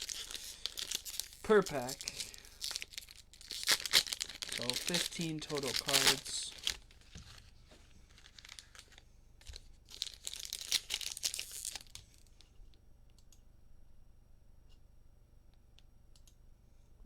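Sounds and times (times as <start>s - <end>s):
plastic wrappers crinkling and tearing: 0.0s - 12.4s.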